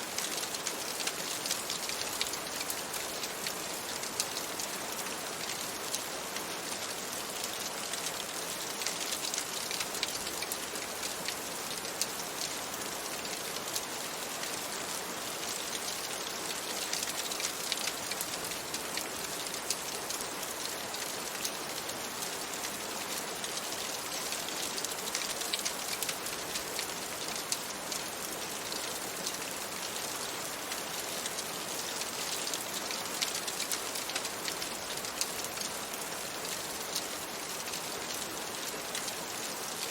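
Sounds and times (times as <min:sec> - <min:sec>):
steady rain: 0:00.0 - 0:39.9
raindrops ticking: 0:24.4 - 0:27.7.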